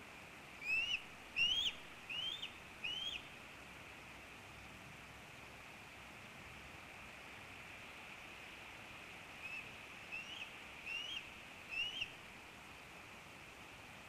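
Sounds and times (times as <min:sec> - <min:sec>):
steady hiss: 0:00.0 - 0:14.0
bird chirps rising in pitch: 0:00.6 - 0:03.2, 0:10.2 - 0:12.1.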